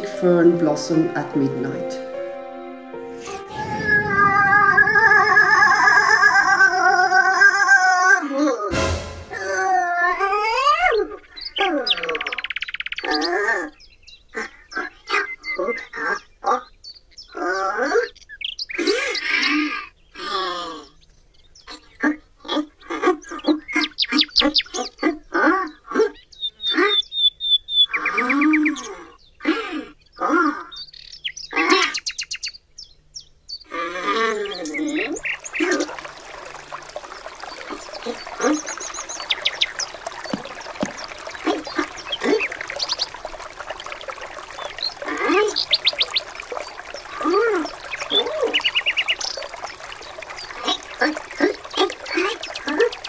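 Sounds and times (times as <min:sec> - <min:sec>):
birds chirping and calling: 0:10.8 - 0:17.4, 0:26.1 - 0:53.0.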